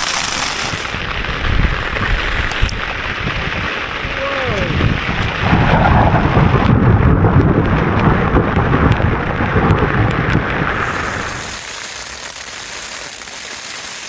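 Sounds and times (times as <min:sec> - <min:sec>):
rain and hail on a tent: 0:00.0 - 0:14.0
thunder crack and rumble: 0:01.0 - 0:11.6.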